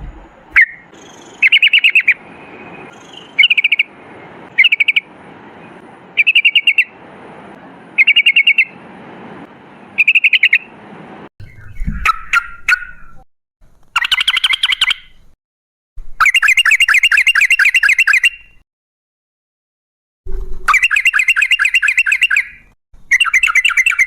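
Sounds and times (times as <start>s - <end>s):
bird calls: 0.0s - 7.0s, 8.0s - 8.8s, 9.7s - 10.7s, 11.4s - 13.2s, 13.9s - 15.2s, 16.2s - 18.6s, 20.7s - 24.0s
bird chattering song: 0.6s - 7.0s, 8.0s - 8.8s, 10.0s - 10.7s, 11.4s - 13.2s, 14.0s - 15.2s, 16.2s - 18.5s, 20.7s - 24.0s.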